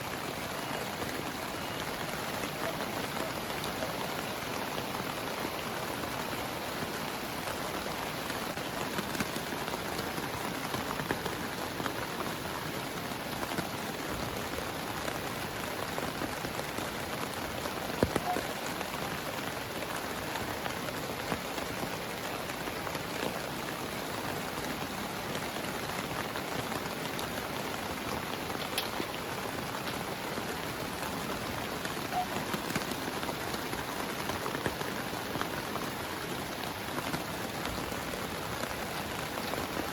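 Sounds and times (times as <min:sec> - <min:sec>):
heavy rain: 0:00.0 - 0:39.9
raindrops tapping: 0:00.0 - 0:39.9.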